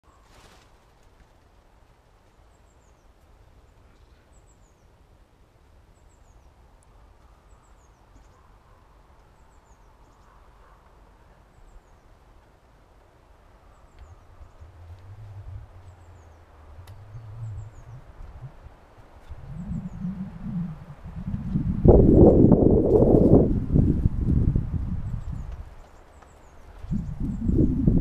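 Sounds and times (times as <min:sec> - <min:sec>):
songbird chirping faintly: 0:02.1 - 0:23.5
low steady rumble: 0:13.5 - 0:25.6.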